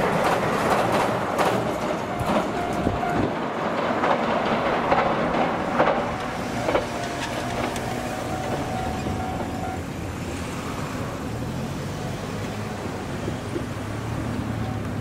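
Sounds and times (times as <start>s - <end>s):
train wheels clacking over rail joints: 0.0s - 11.4s
railcar running noise: 0.0s - 15.0s.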